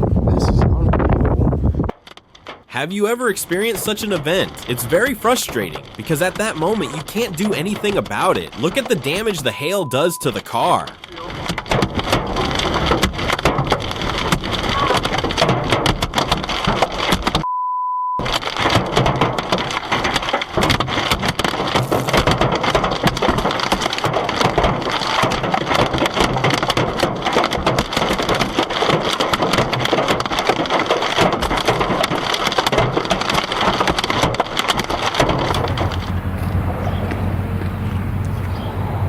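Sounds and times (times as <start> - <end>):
hail clattering on cars: 1.9 - 17.4, 18.2 - 38.4
short steady beep: 9.6 - 10.4, 17.4 - 18.2.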